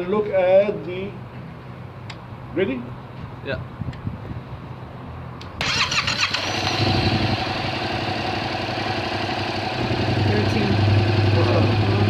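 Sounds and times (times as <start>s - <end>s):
motorcycle engine idling: 5.6s - 12.0s
motorcycle engine starting: 5.6s - 12.0s.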